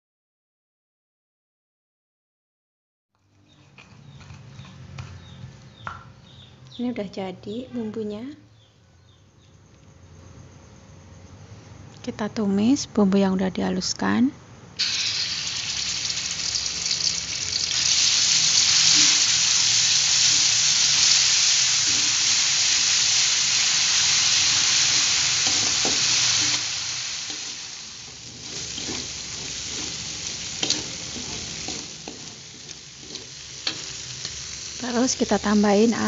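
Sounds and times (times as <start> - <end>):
paste sizzling in hot oil: 14.8 - 36.0
spatula scraping and clinking wok: 24.0 - 34.5.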